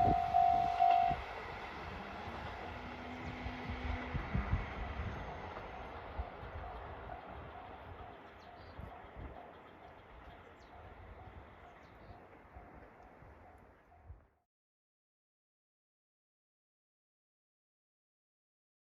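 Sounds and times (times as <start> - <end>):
diesel train rumbling: 0.0 - 14.2.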